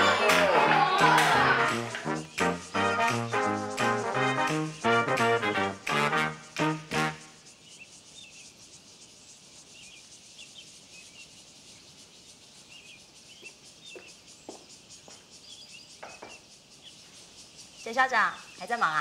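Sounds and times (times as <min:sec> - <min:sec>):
comic brass music: 0:00.0 - 0:07.4
faint outdoor ambience: 0:00.0 - 0:19.0.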